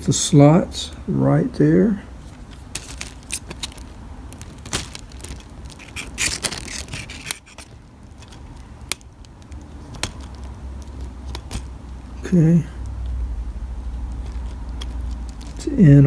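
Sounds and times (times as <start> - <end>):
plastic scraping: 2.2 - 12.3, 13.8 - 16.0
sharp plastic clicks: 4.4 - 11.8.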